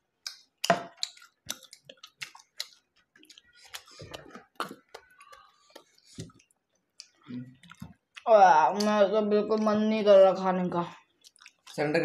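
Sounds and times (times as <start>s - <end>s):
lip smacks: 0.2s - 8.2s
chewing with mouth clicks: 0.2s - 8.9s, 11.1s - 11.8s.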